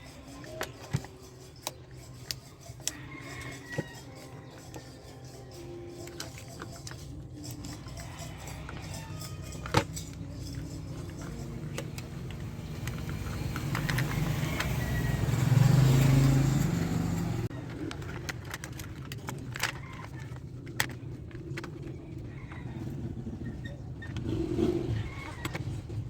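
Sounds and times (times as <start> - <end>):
vehicle engine passing: 10.0 - 17.7.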